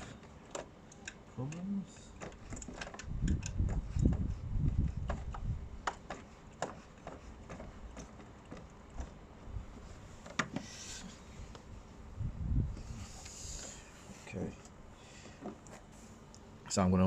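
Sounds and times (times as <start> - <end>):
wind buffeting microphone: 2.4 - 5.9, 12.0 - 13.6.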